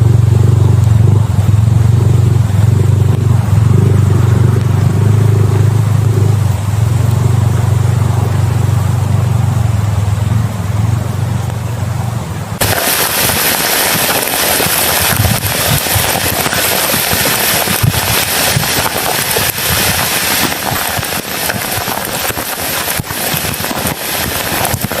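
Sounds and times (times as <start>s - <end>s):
low hum: 0.0s - 19.7s
heavy rain on a tent: 0.0s - 25.0s.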